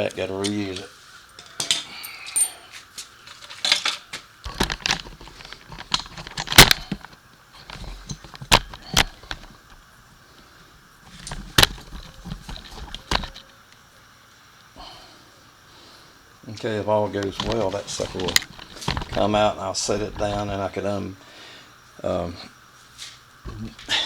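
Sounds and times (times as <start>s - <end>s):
metal hardware clinking: 0.0s - 9.6s.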